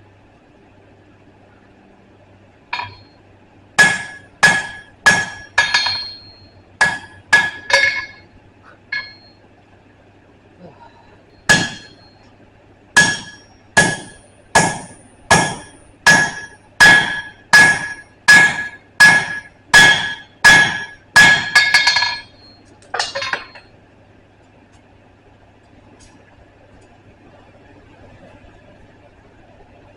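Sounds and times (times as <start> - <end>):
hammer striking steel on anvil: 2.8 - 3.2, 3.8 - 8.3, 8.9 - 9.3, 11.5 - 12.2, 13.0 - 23.7.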